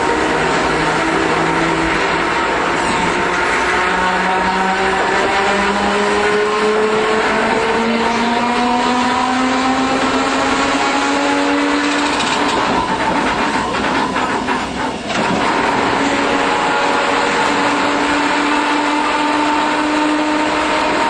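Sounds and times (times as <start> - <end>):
streetcar motor and gear whine: 0.0 - 21.0
wheel and rail rumble: 0.0 - 21.0.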